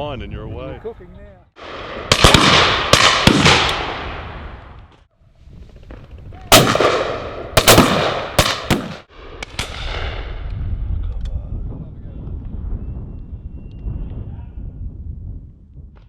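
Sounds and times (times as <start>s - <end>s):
shotguns firing with echo: 1.6s - 4.3s, 6.5s - 9.9s.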